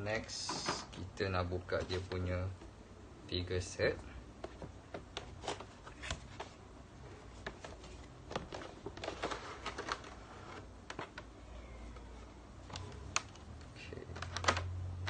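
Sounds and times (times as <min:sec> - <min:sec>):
packaging rustling: 0:07.3 - 0:11.3.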